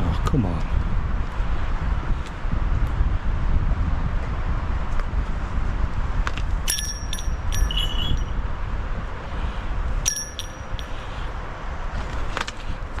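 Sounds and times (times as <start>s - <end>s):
wind rumble on microphone: 0.0s - 13.0s
small metal bells tinkling: 6.7s - 8.4s, 10.0s - 11.3s.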